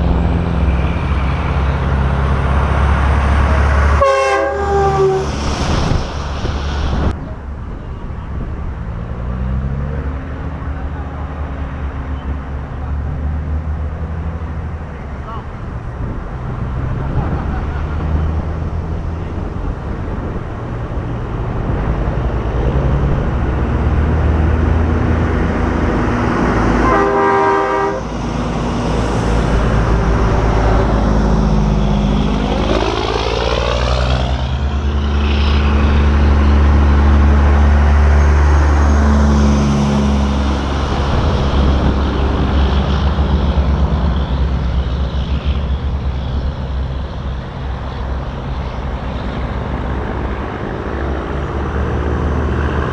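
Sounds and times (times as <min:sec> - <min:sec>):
diesel trucks driving past: 0:00.0 - 0:52.9
truck air horn: 0:04.0 - 0:05.4, 0:26.8 - 0:28.2.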